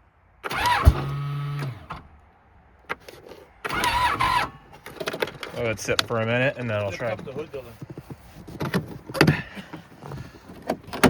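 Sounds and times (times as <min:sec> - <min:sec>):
electric starter whirring: 0:00.4 - 0:02.1, 0:03.6 - 0:04.7.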